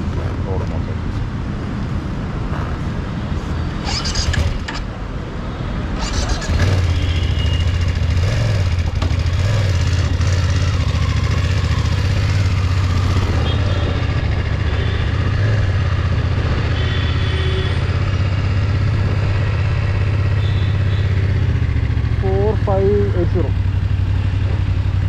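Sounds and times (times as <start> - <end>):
motorcycle engine running: 6.0 - 25.0.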